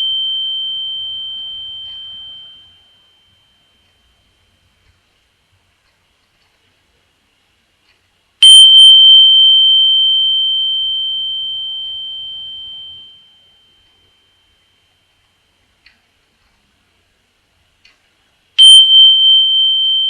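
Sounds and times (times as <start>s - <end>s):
meditation bell ringing: 0.0s - 5.1s, 8.4s - 15.8s, 18.6s - 20.0s.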